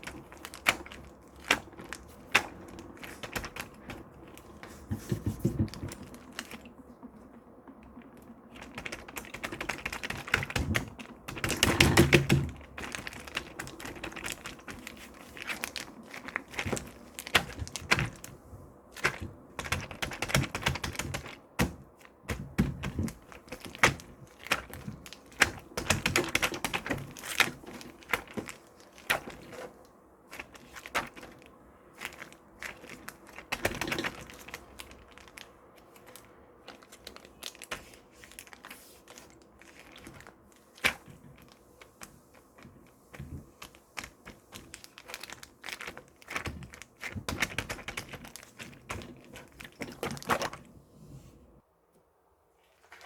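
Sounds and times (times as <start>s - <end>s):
close-up tapping and clicking: 0.0s - 31.4s
crinkling handling noises: 0.0s - 53.0s.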